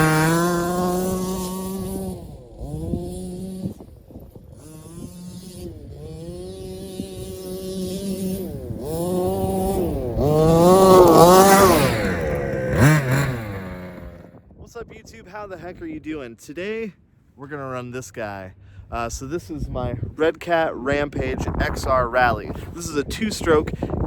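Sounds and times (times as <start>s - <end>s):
small two-stroke engine revving: 0.0s - 14.4s.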